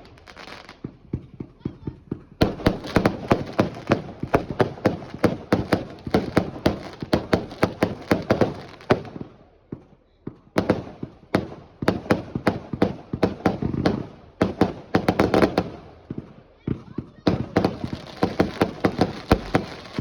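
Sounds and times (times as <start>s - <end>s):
fireworks bangs: 0.0s - 9.8s, 13.8s - 20.0s.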